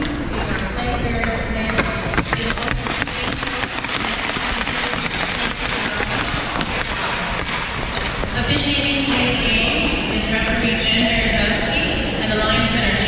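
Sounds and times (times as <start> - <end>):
steady background rumble: 0.0 - 13.0
rapid sharp taps and clicks: 1.7 - 8.3.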